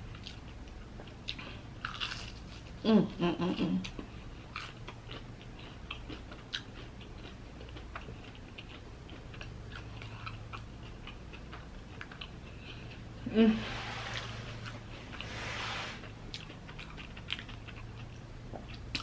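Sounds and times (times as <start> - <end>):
crunchy chewing and mouth clicks: 0.0 - 2.8, 3.5 - 13.2, 16.0 - 19.0
person humming: 2.8 - 3.9, 13.2 - 14.0.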